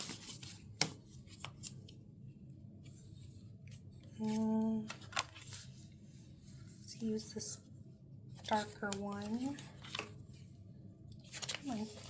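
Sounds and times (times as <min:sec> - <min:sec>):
paper being handled: 0:00.0 - 0:01.9, 0:04.1 - 0:05.9, 0:08.4 - 0:10.2, 0:11.2 - 0:12.0.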